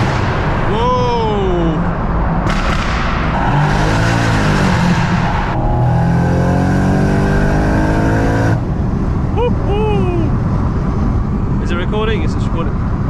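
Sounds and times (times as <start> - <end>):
car engine accelerating hard: 3.3 - 9.1.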